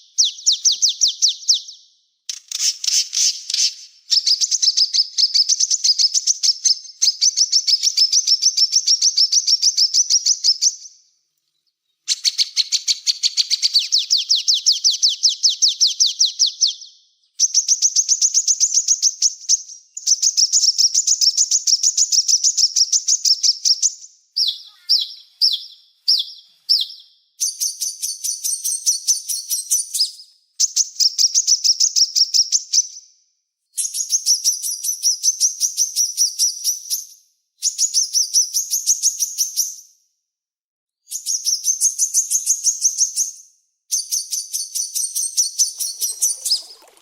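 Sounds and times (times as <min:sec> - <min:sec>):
songbird trilling: 0:45.6 - 0:47.0.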